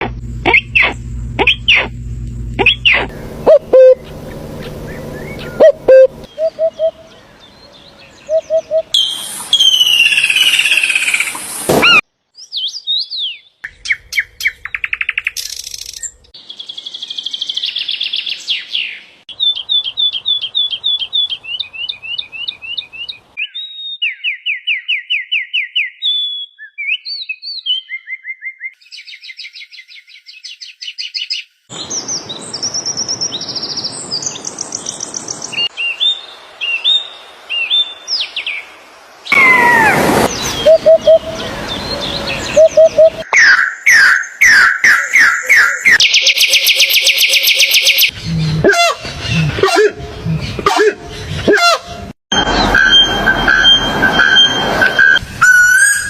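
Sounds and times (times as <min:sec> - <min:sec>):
bird chirps and trills: 0:00.4 - 0:02.0, 0:02.6 - 0:38.7, 0:39.3 - 0:56.0
whistled bird calls: 0:00.5 - 0:01.9, 0:02.6 - 0:38.6, 0:39.3 - 0:48.1, 0:52.4 - 0:56.0
burst of bird whistling: 0:08.3 - 0:12.0, 0:39.3 - 0:41.5, 0:52.4 - 0:56.0.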